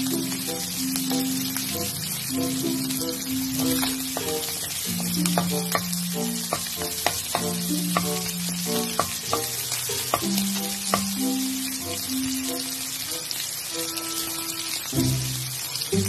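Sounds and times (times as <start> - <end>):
meat sizzling in a hot pan: 0.0 - 16.0
spatula scraping a metal pan: 3.6 - 11.2.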